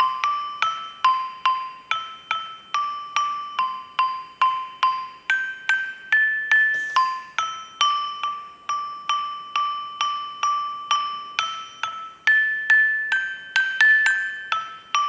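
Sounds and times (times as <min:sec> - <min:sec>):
metallophone struck with mallet: 0:06.5 - 0:09.4.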